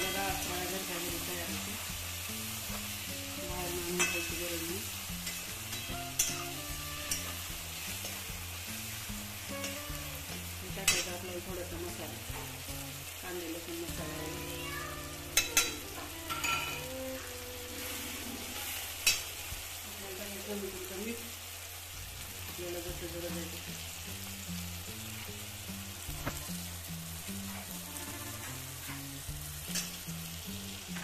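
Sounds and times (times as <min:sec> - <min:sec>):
oil sizzling in a pan: 0:00.0 - 0:31.0
spatula stirring: 0:01.5 - 0:11.2.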